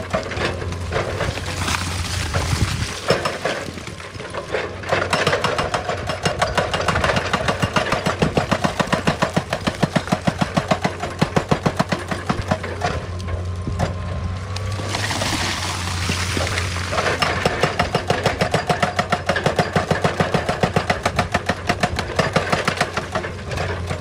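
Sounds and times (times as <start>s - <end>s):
hydraulic rock breaker hammering: 0.0s - 14.1s, 15.9s - 24.0s
excavator engine humming: 0.0s - 24.0s.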